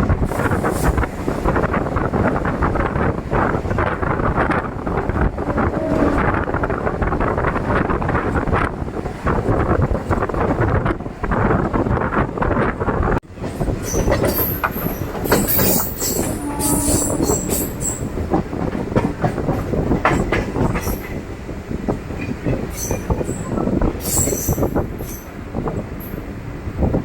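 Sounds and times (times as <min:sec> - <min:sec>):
train wheel and rail rumble: 0:00.0 - 0:27.0
high wheel squeal: 0:13.8 - 0:18.1.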